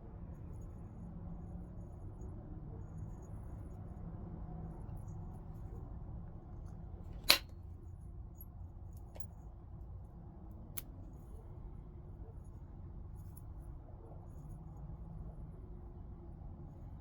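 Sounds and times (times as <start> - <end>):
tool clicking on stone: 7.2 - 7.5.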